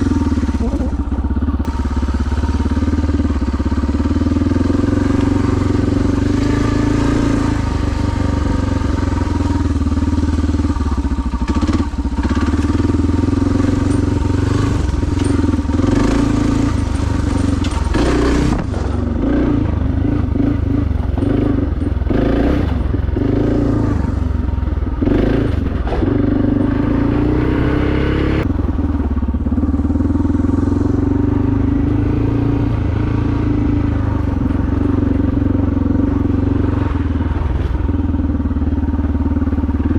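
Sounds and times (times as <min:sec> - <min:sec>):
motorcycle engine running: 0:00.0 - 0:39.9
engine knocks: 0:10.6 - 0:27.0.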